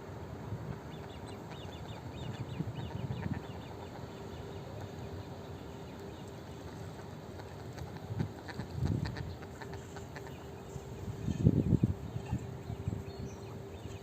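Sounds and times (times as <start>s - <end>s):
bird chirping: 9.3s - 14.0s.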